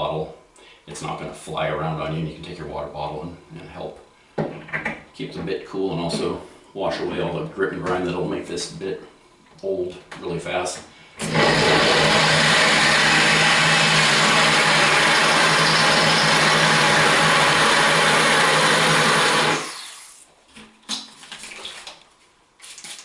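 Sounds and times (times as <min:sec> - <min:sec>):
drill bit grinding tile: 0:11.2 - 0:20.2
drill motor hum: 0:11.2 - 0:20.2.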